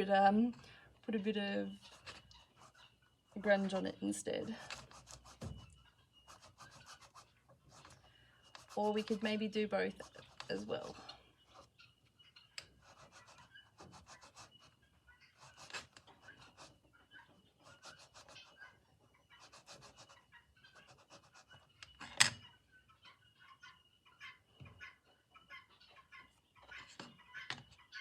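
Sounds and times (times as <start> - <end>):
soft scratching strokes: 1.6 - 11.8, 12.6 - 21.8.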